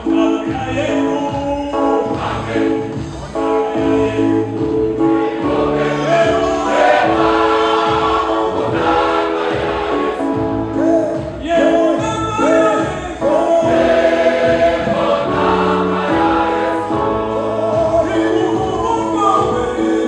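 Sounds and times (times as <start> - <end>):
choir singing a hymn: 1.8 - 11.0, 12.4 - 20.0.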